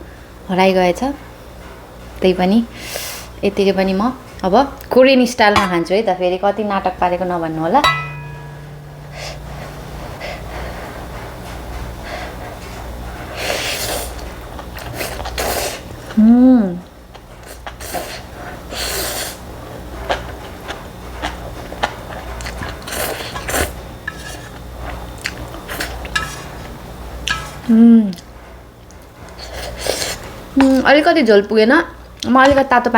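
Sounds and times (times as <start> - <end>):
noodle slurping: 29.3 - 30.8.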